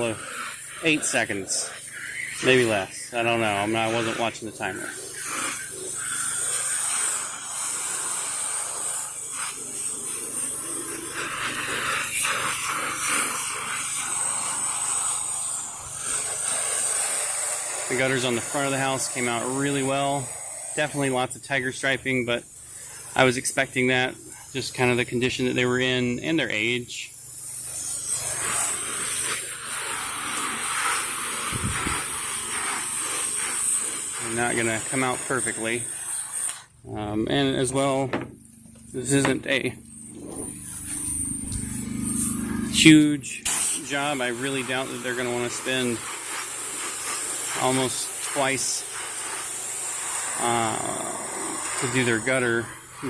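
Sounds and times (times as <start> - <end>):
pressure washer water jet hissing: 0.0 - 53.0
low hum: 36.7 - 43.8.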